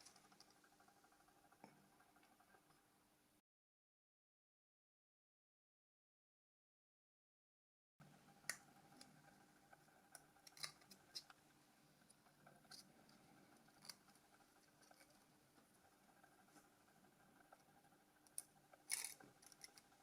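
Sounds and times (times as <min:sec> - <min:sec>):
small parts clicking: 0:10.0 - 0:11.4, 0:17.6 - 0:20.0.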